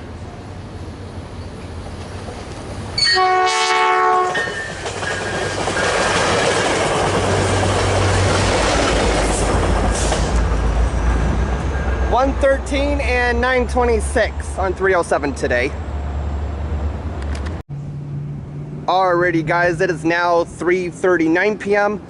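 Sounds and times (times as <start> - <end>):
train horn blast: 3.0 - 4.5
train wheels rattling on rails: 4.0 - 14.0.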